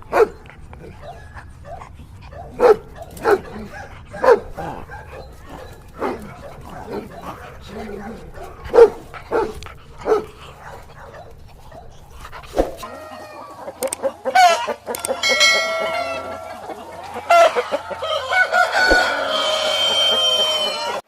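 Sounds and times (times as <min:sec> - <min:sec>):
chickens clucking: 0:00.0 - 0:21.0
rooster crowing: 0:12.8 - 0:21.0.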